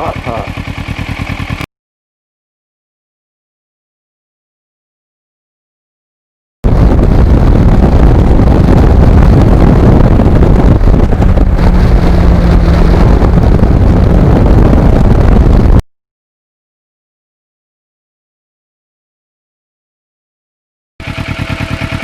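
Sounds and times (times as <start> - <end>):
motorcycle engine running: 0.0 - 1.7, 6.6 - 15.8, 21.0 - 22.0
wind buffeting microphone: 6.6 - 15.8.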